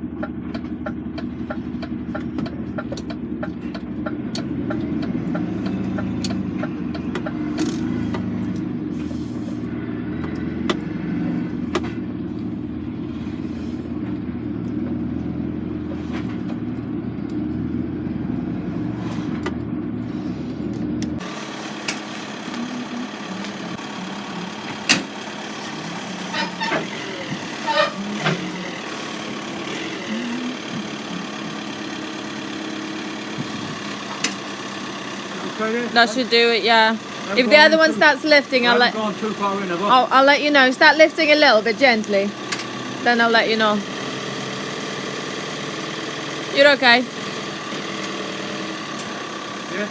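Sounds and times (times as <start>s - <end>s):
lorry diesel engine running: 0.0s - 49.9s
short squeaks: 25.5s - 30.6s.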